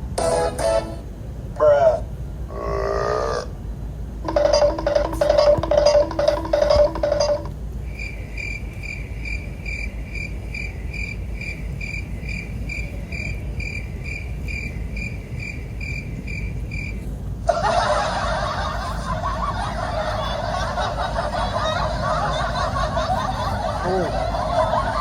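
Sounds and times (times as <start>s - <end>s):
low steady rumble: 0.0s - 25.0s
cricket chirping: 4.3s - 17.1s.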